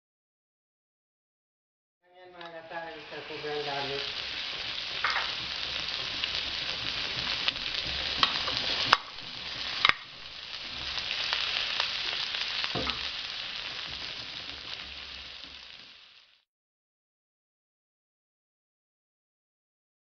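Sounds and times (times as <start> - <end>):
food sizzling in a wok: 2.2 - 16.5
metal spatula stirring: 4.0 - 15.2.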